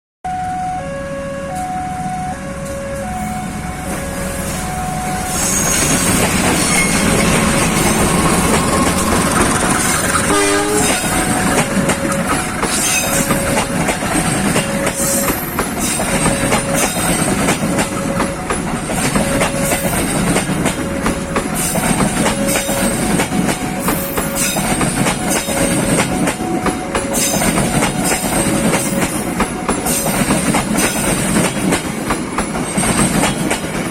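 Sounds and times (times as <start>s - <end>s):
level crossing alarm beeping: 0.3s - 32.9s
train rumble: 0.3s - 33.9s
train wheels clickety-clack: 4.5s - 33.9s
train horn blast: 10.2s - 18.6s.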